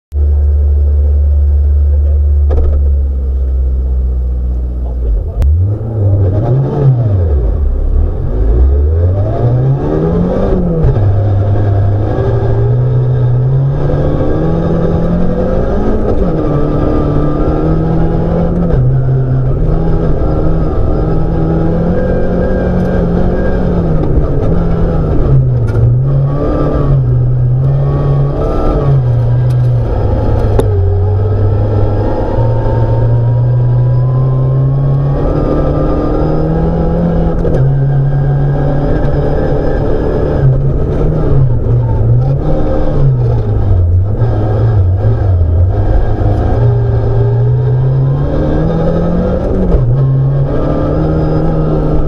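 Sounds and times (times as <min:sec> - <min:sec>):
car engine revving: 0:00.2 - 0:52.0.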